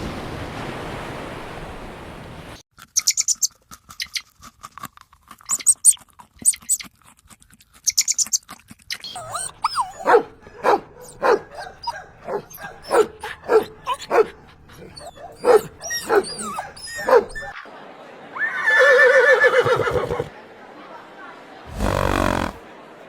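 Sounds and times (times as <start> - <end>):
dog barking: 9.1 - 17.6
wavering animal call: 9.1 - 17.6.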